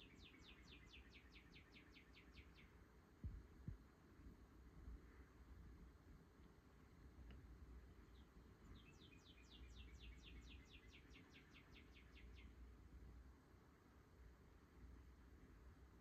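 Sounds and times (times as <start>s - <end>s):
faint bird chirps: 0.0s - 2.9s, 8.0s - 12.7s
low steady hum: 0.0s - 16.0s.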